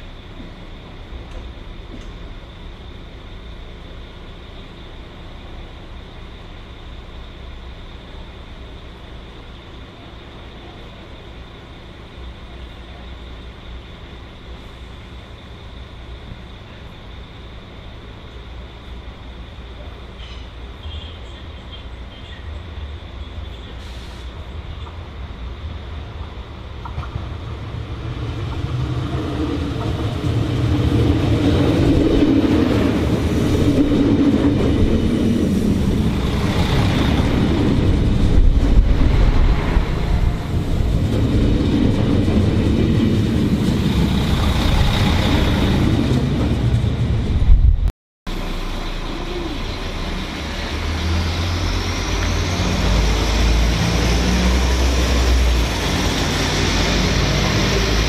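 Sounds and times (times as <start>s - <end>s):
train wheels rumbling on rail: 0.0s - 58.0s
throbbing engine with rising whine: 24.5s - 58.0s.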